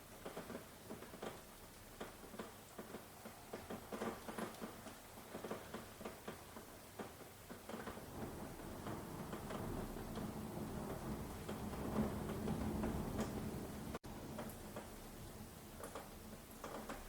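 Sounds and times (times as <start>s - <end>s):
raindrops tapping and dripping: 0.0s - 17.0s
soft steady rain hiss: 0.0s - 17.0s.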